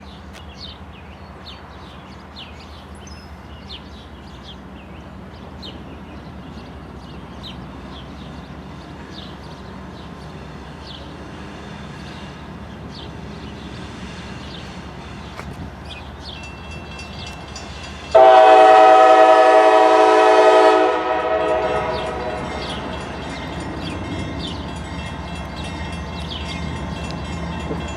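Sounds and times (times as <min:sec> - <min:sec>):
freight train rumbling: 0:00.0 - 0:27.9
locomotive horn blast: 0:18.1 - 0:23.0.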